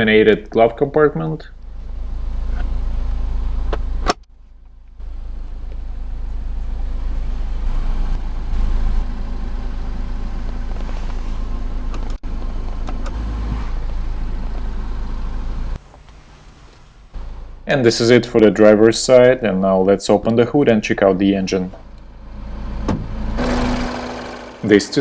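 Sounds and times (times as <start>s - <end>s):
car engine idling: 4.6s - 17.7s, 21.7s - 25.0s.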